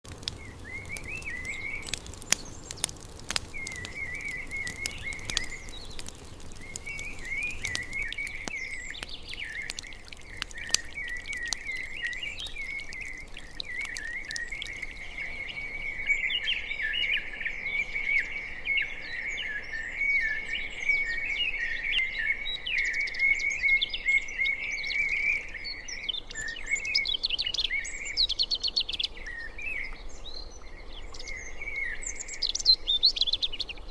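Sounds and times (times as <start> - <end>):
birds chirping and singing: 0.2 - 17.3.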